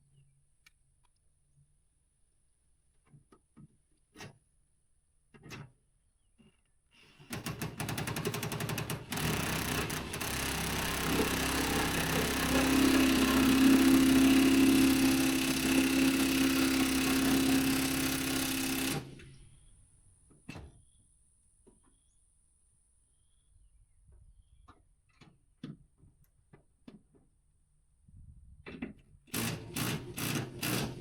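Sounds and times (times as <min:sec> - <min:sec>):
impact wrench hammering: 0:07.3 - 0:19.3.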